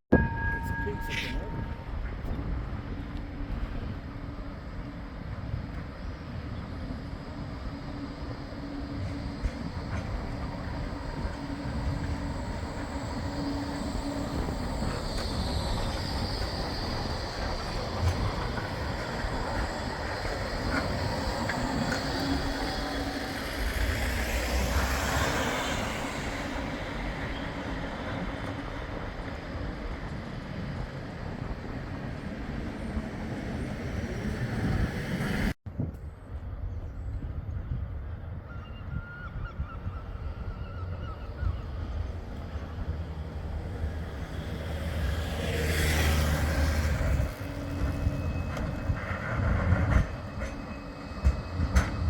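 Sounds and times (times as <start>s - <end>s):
tram wheels rumbling on rail: 0.1s - 52.0s
high wheel squeal: 6.9s - 28.7s, 44.0s - 52.0s.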